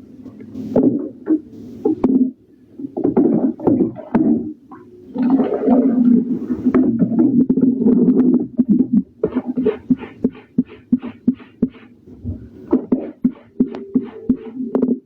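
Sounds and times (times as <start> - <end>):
clothes scrubbed by hand in water: 9.2 - 12.0, 12.7 - 15.0.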